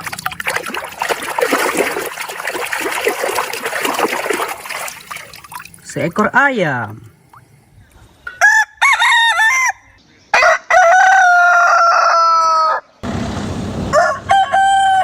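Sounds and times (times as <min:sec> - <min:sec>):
rooster clucking and crowing: 0:08.4 - 0:13.0, 0:13.9 - 0:15.0.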